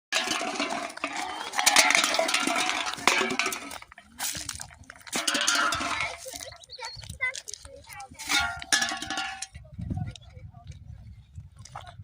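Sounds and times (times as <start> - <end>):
hard objects clinking: 0.1 - 9.6.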